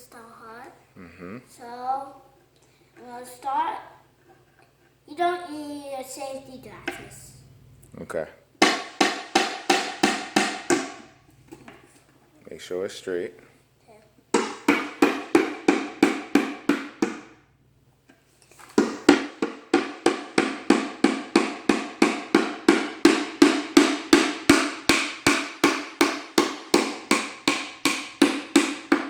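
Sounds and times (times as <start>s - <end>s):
hammer driving nail into wood: 8.6s - 11.1s, 14.4s - 17.4s, 18.8s - 29.0s.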